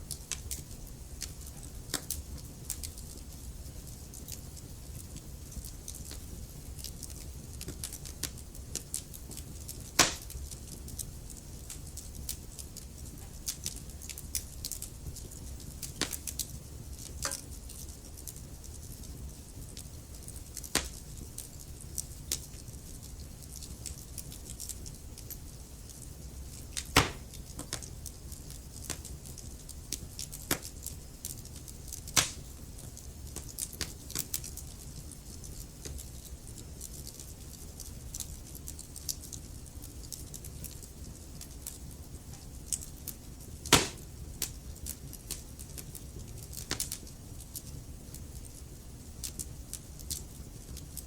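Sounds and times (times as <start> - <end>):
wood fire crackling: 0.0 - 51.0
loud pops of burning wood: 4.0 - 17.9, 19.7 - 21.3, 23.6 - 34.8, 42.7 - 48.6.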